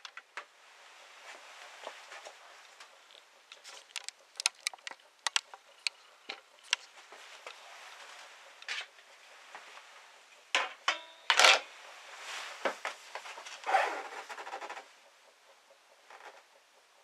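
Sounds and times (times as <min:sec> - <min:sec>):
tools clicking and knocking: 0:03.1 - 0:06.9
scraping rubs: 0:11.8 - 0:14.9.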